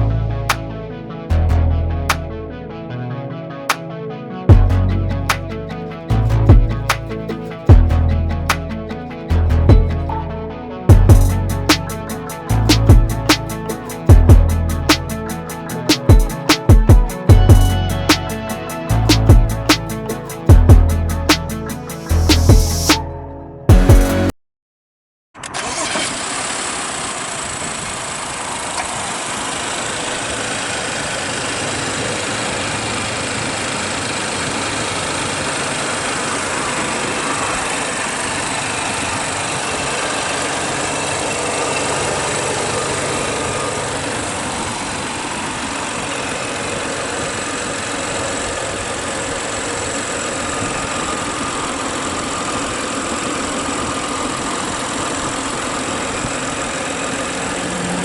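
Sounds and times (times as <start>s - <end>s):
car engine idling: 10.9s - 22.9s, 25.6s - 58.0s.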